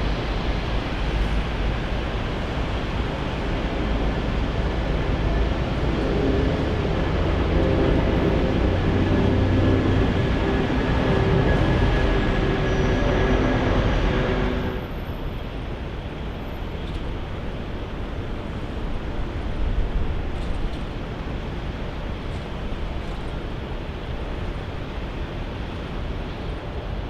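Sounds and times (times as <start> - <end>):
steady whining tones: 0.0 - 15.7
engine and traffic rumble: 0.0 - 27.0.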